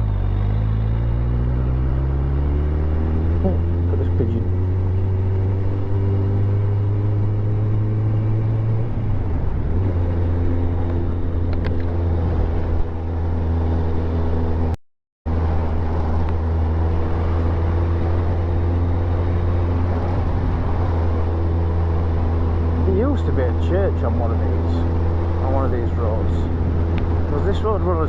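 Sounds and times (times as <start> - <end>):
motorcycle engine running: 0.0 - 14.7.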